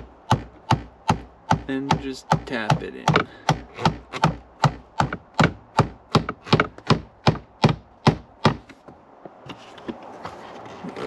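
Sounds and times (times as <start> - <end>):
small hammer tapping metal: 0.3 - 6.7.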